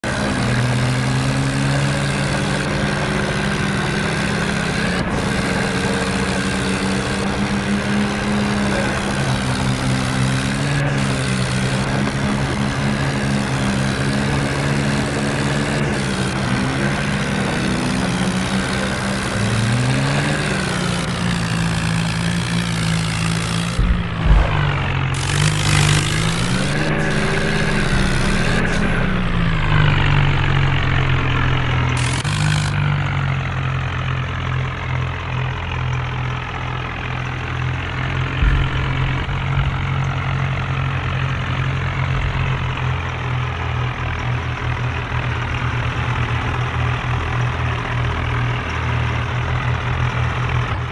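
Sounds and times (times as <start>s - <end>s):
tractor diesel engines under load: 0.0s - 50.9s
loud burst of noise: 23.2s - 32.9s, 38.2s - 43.3s.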